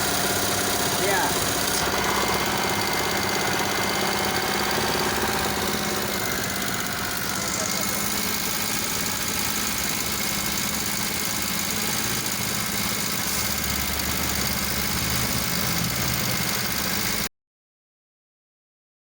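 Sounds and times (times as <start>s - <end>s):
engine idling: 0.0s - 17.3s.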